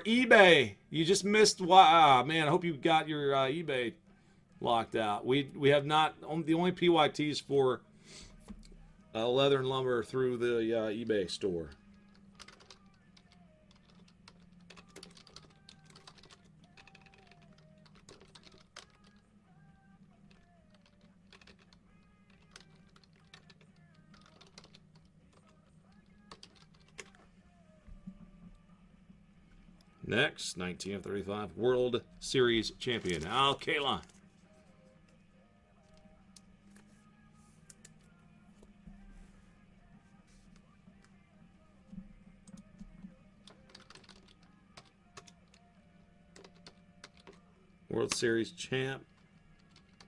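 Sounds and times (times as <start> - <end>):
faint background music: 0.0 - 50.0
typing on computer keyboard: 12.1 - 19.2, 20.3 - 27.2, 42.4 - 45.7, 46.3 - 47.4, 49.1 - 50.0.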